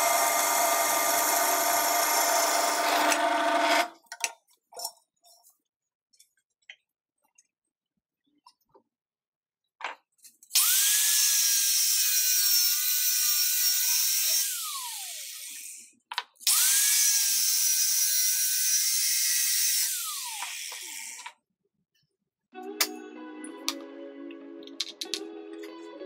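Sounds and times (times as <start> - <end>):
circular saw cutting wood: 0.0 - 4.0, 10.6 - 15.9, 16.5 - 21.3.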